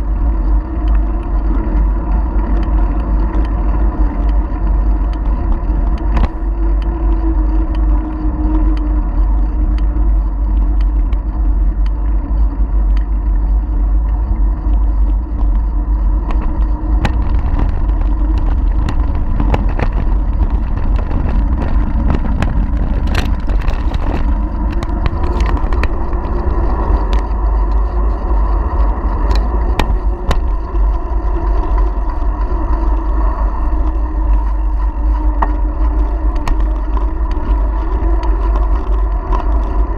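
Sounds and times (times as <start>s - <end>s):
bicycle clicks and rattles: 0.0s - 39.9s
wind rumble on microphone: 0.0s - 39.9s.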